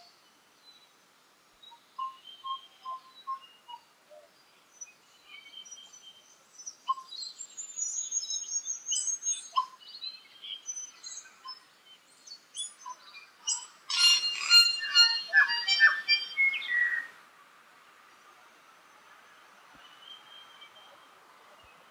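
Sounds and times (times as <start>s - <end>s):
bird singing whistled notes: 1.6s - 17.1s.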